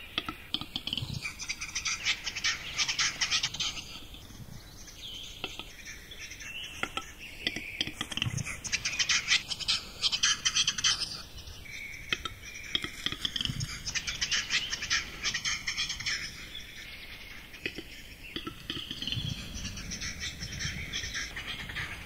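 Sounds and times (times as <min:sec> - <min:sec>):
small birds chirping and singing: 0:00.0 - 0:22.0
low rumble: 0:18.8 - 0:22.0.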